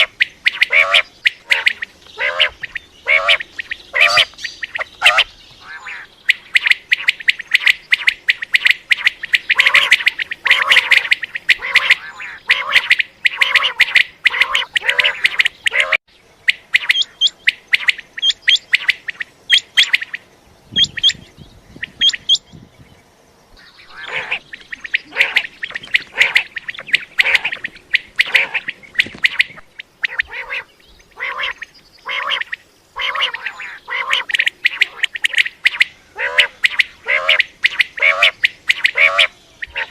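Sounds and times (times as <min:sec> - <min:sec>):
quail calling: 0:00.0 - 0:21.2, 0:23.6 - 0:39.9.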